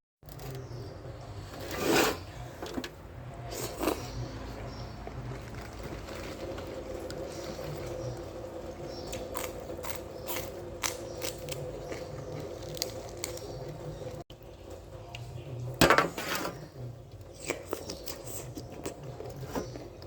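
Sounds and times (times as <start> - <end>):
wet squelchy chewing: 3.5 - 14.2, 17.1 - 20.0.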